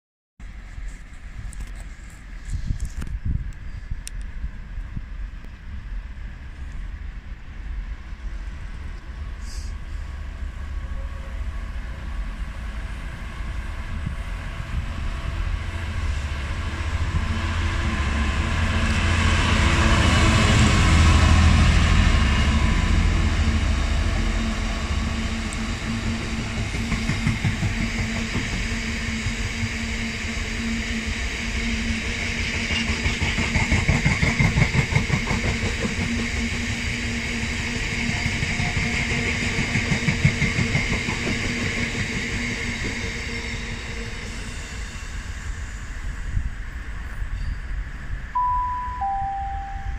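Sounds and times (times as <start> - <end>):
diesel locomotive passing: 4.1 - 49.9
clatter of train wheels: 24.8 - 30.5, 31.6 - 48.3.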